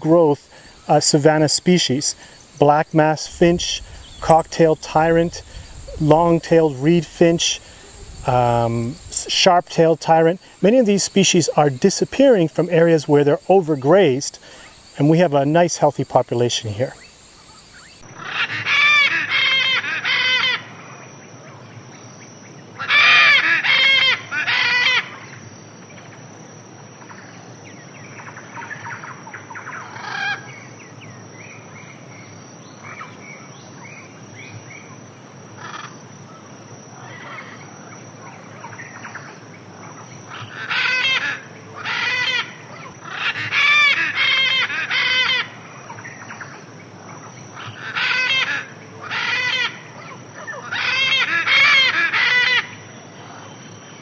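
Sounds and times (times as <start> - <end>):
high-pitched insect trill: 0.0 - 54.0
loud bird calls: 0.4 - 15.3, 16.2 - 20.8, 37.0 - 46.6, 47.2 - 54.0
faint bird chirps: 2.1 - 7.0, 7.6 - 9.3, 16.9 - 18.0.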